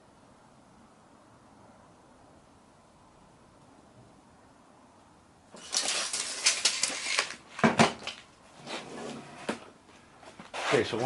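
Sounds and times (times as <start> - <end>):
scraping and rubbing: 5.6 - 7.5, 8.1 - 9.6.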